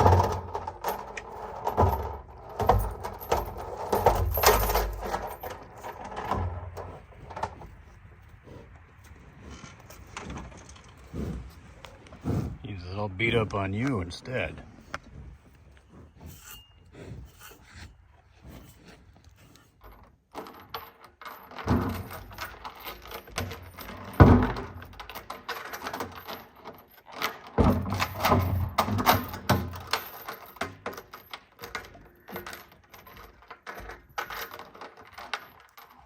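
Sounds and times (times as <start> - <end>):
clinks: 0.0 - 7.7, 15.7 - 36.0
bison rubbing and licking metal: 0.0 - 36.0.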